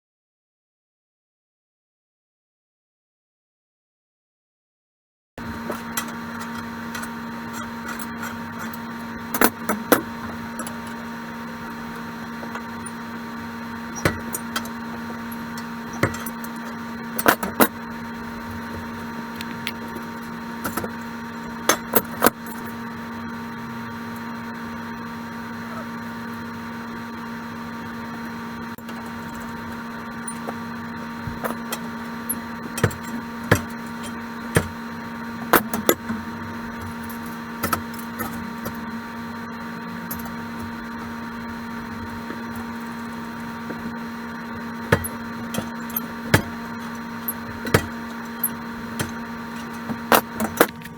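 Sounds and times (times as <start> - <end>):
steady electrical hum: 5.4 - 50.9
metal parts clicking and knocking: 44.9 - 50.9.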